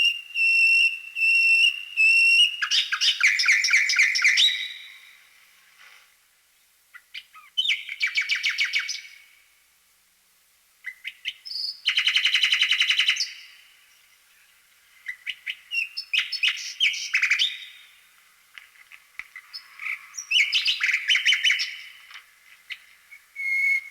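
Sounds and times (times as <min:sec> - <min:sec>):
small bird chirping: 0:19.3 - 0:23.9.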